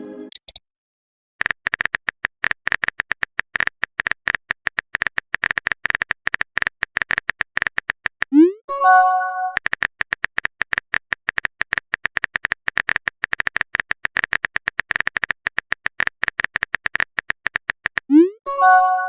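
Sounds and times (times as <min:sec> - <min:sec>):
typing blip clicks: 0:09.6 - 0:18.2.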